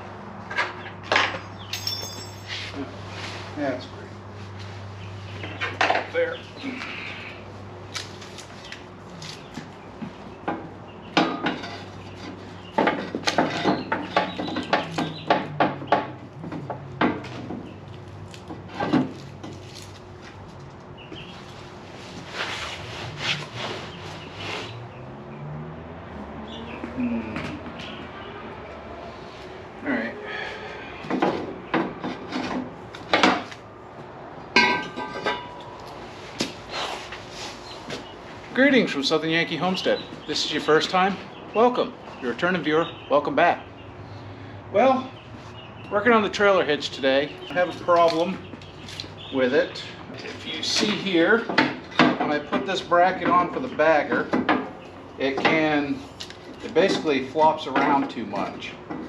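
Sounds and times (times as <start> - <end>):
metal tools knocking and clanking: 0.5 - 2.8, 34.5 - 35.7
ringing metal clank: 1.6 - 2.7, 34.6 - 35.7.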